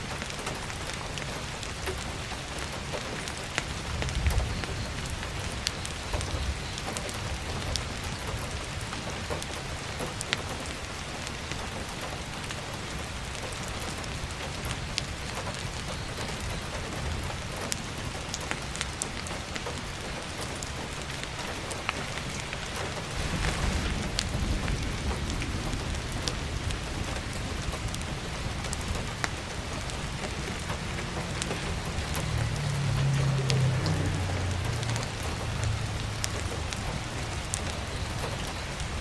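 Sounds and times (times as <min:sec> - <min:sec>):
firewood crackling: 0:00.0 - 0:39.0
heavy rain on a roof: 0:00.0 - 0:39.0
low rumble: 0:23.0 - 0:38.2.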